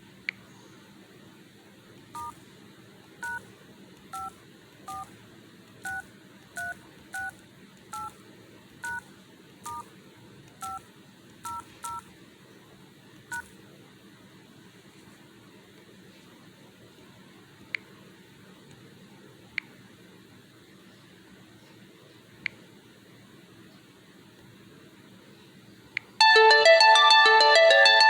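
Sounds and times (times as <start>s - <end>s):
touch-tone keypad beeps: 2.2s - 2.4s, 3.2s - 3.4s, 8.8s - 9.0s, 10.6s - 10.8s.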